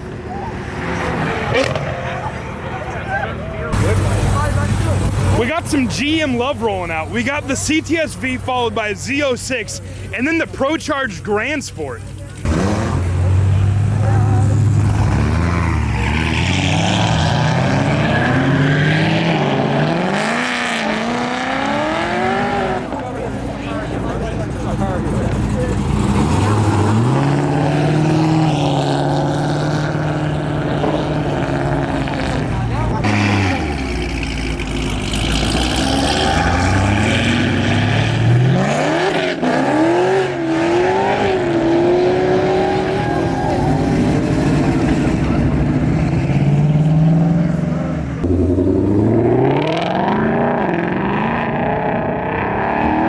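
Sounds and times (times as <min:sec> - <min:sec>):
car engine accelerating: 0:00.0 - 0:53.0.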